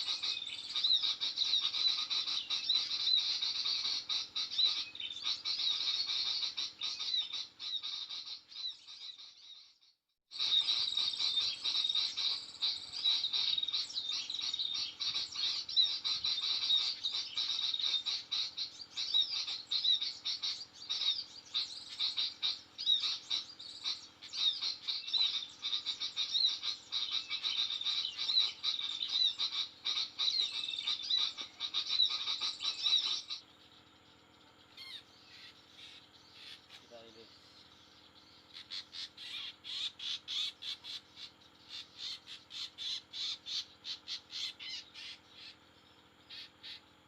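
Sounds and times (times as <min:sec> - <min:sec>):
birds twittering and chirping: 0:00.0 - 0:47.0.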